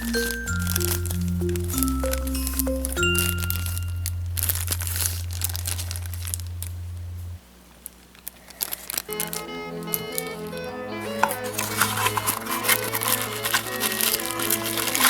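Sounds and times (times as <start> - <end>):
background music: 0.0 - 5.0, 9.1 - 15.0
packaging crinkling: 0.0 - 6.8, 7.8 - 15.0.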